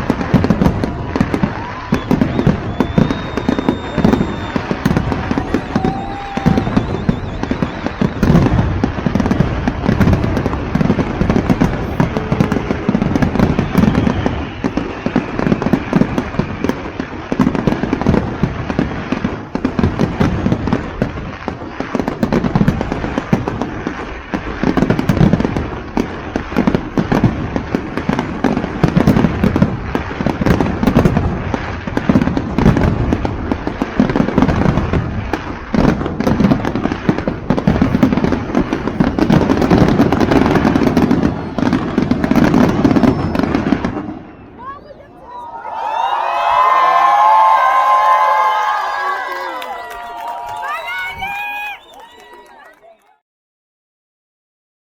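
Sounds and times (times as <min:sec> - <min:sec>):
fireworks bangs and crackles: 0:00.0 - 0:53.1
whistling rockets: 0:00.0 - 0:53.1.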